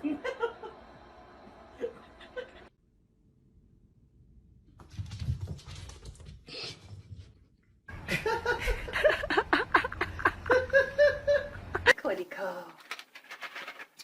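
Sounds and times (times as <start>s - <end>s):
person laughing hard: 8.0s - 11.9s.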